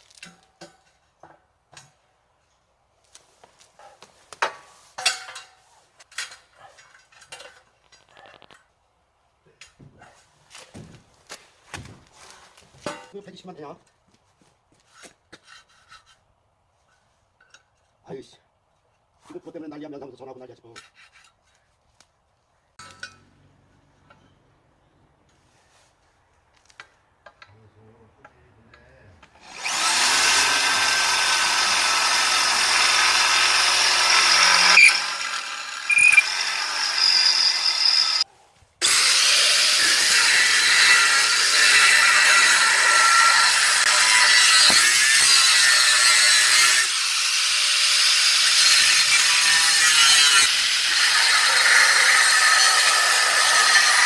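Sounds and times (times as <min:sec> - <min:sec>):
power tool cutting: 0:29.4 - 0:38.2, 0:38.8 - 0:54.0.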